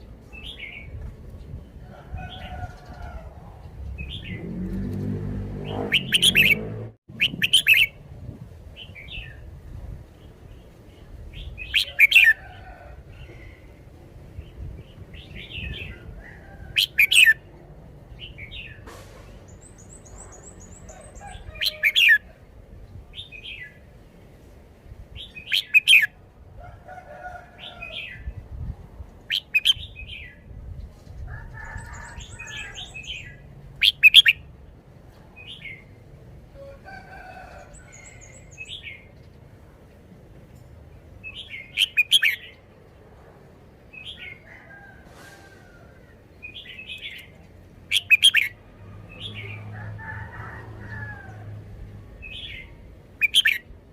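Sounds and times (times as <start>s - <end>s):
bulbul singing: 5.6s - 8.0s, 52.4s - 53.6s.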